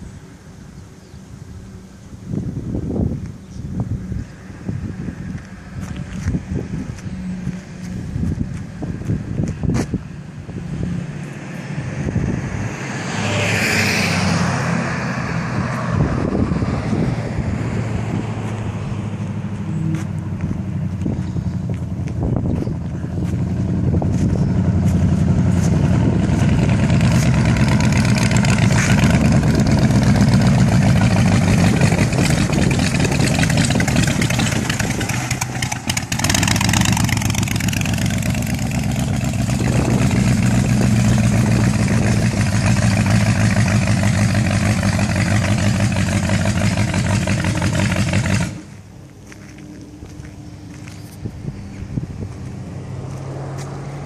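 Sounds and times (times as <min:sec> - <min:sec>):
loud engine running: 0:16.0 - 0:51.0.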